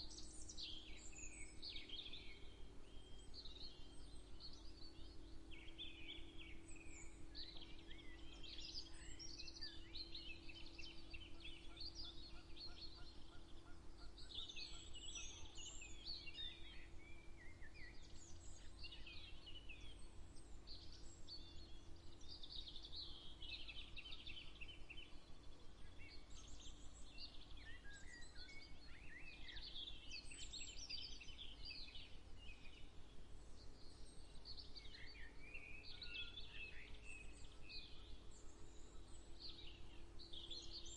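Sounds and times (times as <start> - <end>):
faint steady hum: 0.0 - 40.9
songbirds singing: 0.0 - 40.9.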